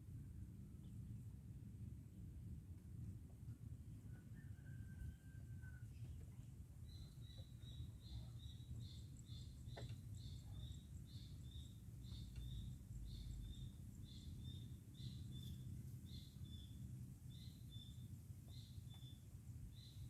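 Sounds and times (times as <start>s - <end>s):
faint low rumble: 5.7s - 20.0s
small bird chirping: 6.8s - 20.0s.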